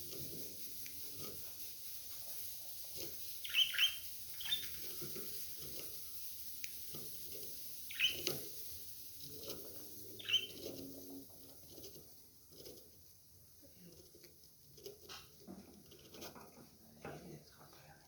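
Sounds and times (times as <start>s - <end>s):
low bird chatter: 0.0s - 11.9s
budgerigars chirping: 3.4s - 4.8s, 7.9s - 8.4s, 10.2s - 10.6s.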